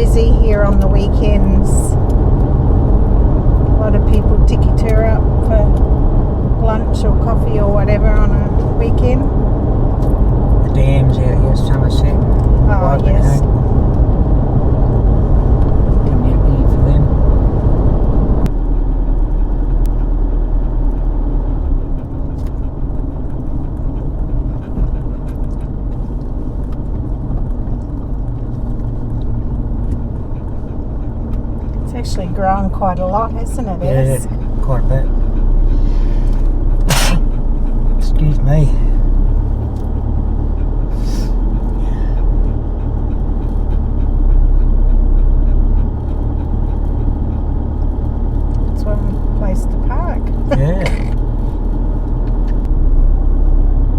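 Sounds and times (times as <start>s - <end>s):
car cabin road noise: 0.0s - 53.9s.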